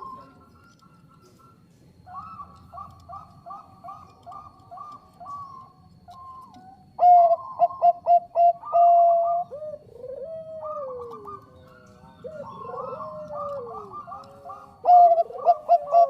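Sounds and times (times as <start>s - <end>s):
dove cooing: 0.0s - 16.0s.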